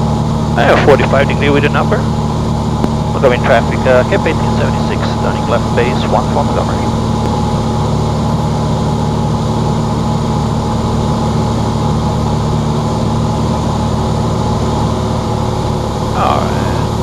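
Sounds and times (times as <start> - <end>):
plane engine and propeller: 0.0 - 17.0.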